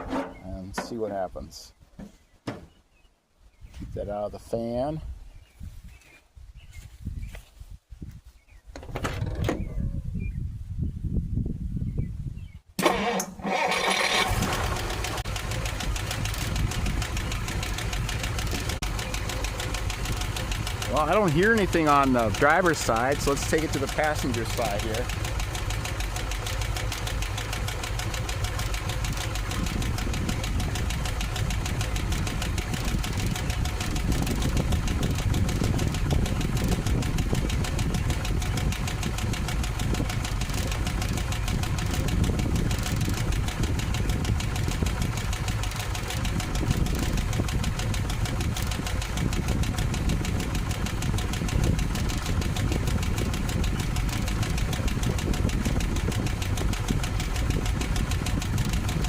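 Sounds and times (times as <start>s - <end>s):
car engine idling: 13.7s - 59.0s
fast exhaust ticking: 13.7s - 59.0s.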